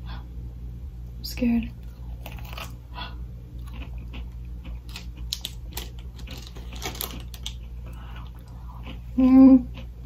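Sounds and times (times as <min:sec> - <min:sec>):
crunchy snack being chewed: 0:01.8 - 0:02.9, 0:03.5 - 0:10.0.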